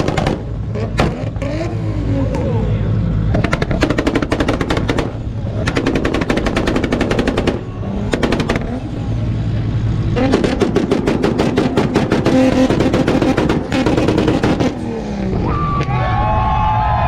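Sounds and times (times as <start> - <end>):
loud exhaust bangs: 0.0 - 17.0.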